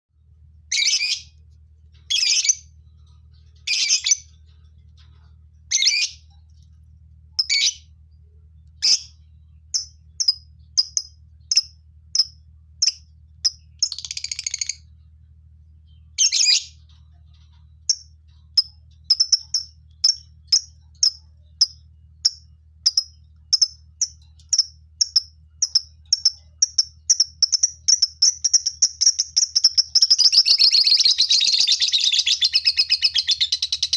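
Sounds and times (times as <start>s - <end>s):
faint low hum: 0.1s - 33.9s
lovebirds screeching and chirping: 3.6s - 4.2s, 5.7s - 6.2s.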